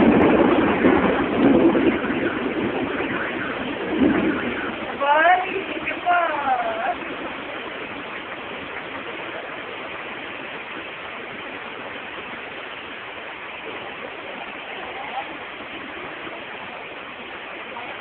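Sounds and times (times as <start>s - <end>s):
rain falling steadily: 0.0s - 18.0s
faint voices: 4.8s - 10.2s, 13.3s - 18.0s.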